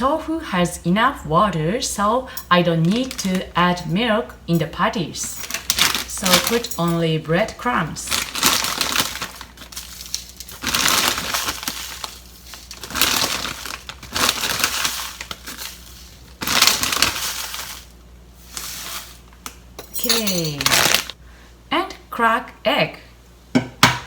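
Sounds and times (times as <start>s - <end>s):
breadcrumbs rustling into bowl: 8.1s - 19.4s, 20.5s - 21.2s.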